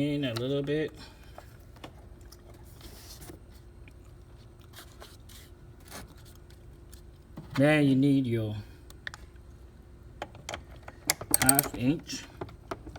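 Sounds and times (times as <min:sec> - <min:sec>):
screw turning clicks: 0:11.1 - 0:11.8
metal parts being handled: 0:11.3 - 0:12.0.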